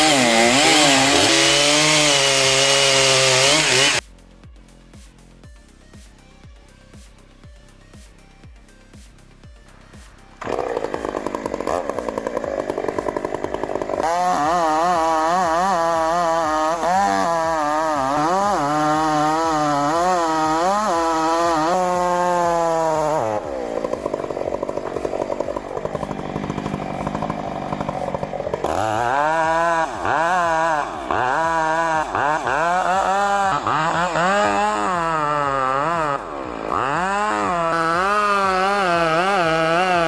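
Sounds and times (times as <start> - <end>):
chainsaw cutting wood: 0.0 - 4.1, 7.8 - 40.0.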